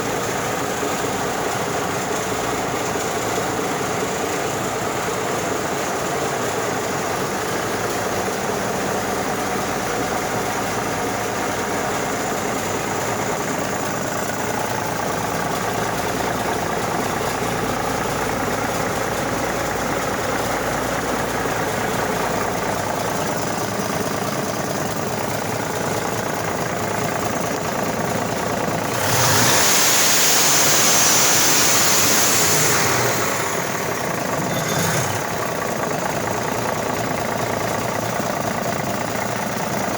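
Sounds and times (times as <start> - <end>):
diesel engine idling: 0.0 - 39.9
loud hissing rush: 28.8 - 35.5.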